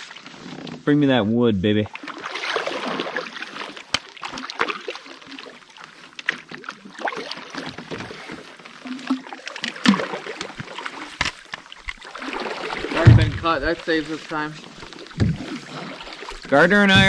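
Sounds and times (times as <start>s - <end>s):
water sloshing: 1.9s - 17.0s
firewood clunking in canoe: 7.5s - 13.9s, 14.8s - 17.0s.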